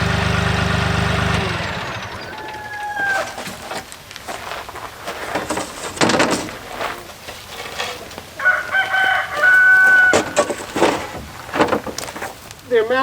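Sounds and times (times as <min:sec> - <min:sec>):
farmyard sounds: 0:00.0 - 0:13.0
rooster crowing: 0:02.0 - 0:03.5, 0:08.4 - 0:10.6.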